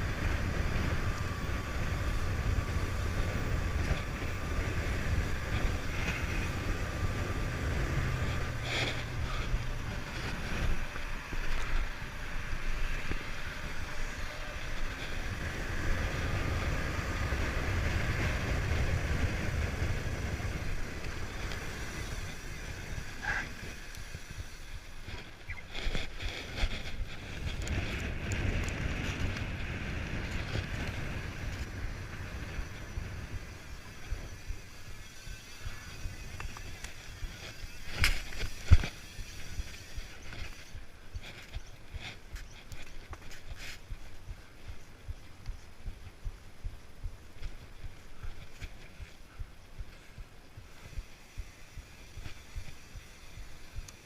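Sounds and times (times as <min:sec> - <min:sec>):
bike low rumble: 0:00.0 - 0:54.0
wind buffeting microphone: 0:00.0 - 0:54.0.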